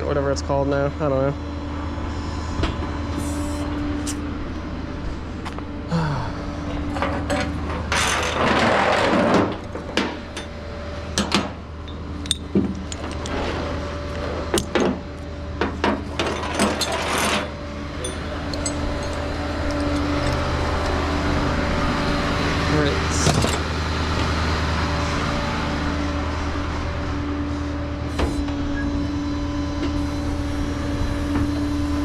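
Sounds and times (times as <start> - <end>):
truck engine drone: 0.0 - 32.0.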